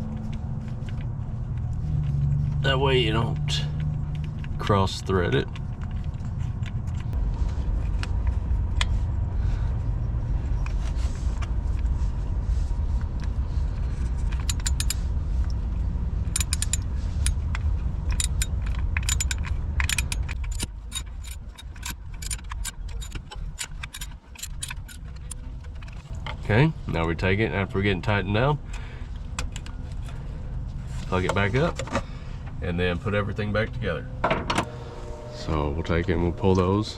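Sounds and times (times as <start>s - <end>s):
steady low rumble: 0.0s - 36.9s
wrench clicking on metal: 14.3s - 15.0s, 16.3s - 17.4s, 18.1s - 25.4s.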